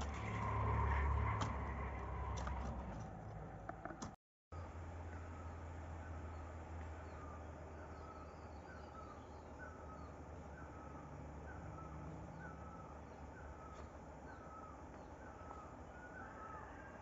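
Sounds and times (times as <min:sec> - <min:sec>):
bird calling repeatedly: 0:07.0 - 0:16.8.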